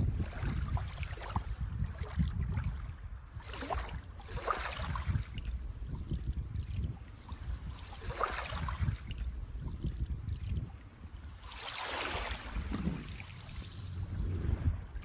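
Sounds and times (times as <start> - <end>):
wind on microphone: 0.0 - 15.0
waves washing on sandy beach: 11.1 - 15.0.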